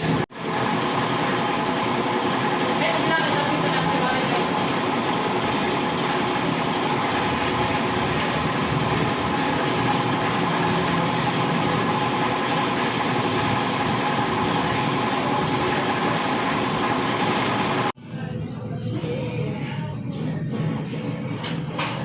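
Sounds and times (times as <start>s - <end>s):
vehicle engine running: 0.4s - 18.0s.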